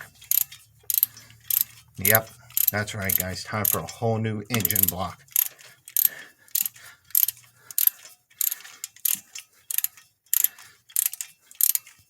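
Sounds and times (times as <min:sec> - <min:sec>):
ratchet wrench clicking: 0:00.0 - 0:12.0.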